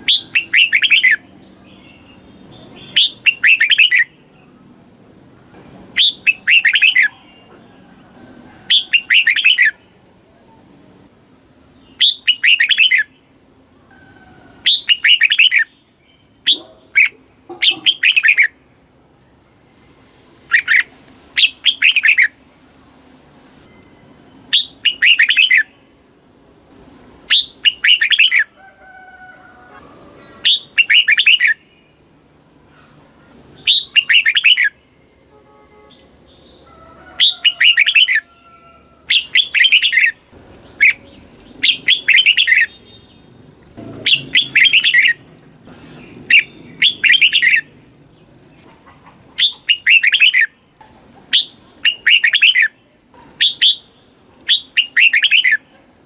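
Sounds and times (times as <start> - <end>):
bird singing warbling phrases: 0.0 - 4.6, 5.4 - 7.6, 8.7 - 10.5, 11.7 - 13.4, 14.6 - 18.6, 20.5 - 22.4, 23.8 - 25.9, 27.3 - 28.6, 30.2 - 32.0, 32.6 - 35.2, 37.2 - 38.3, 39.0 - 55.8
faint bird calls: 35.7 - 47.7.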